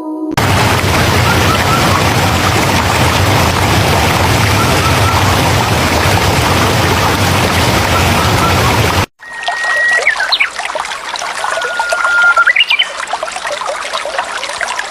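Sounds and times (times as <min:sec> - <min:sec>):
rushing water: 0:00.4 - 0:14.9
faint high chirp: 0:09.2 - 0:10.5, 0:11.6 - 0:12.9.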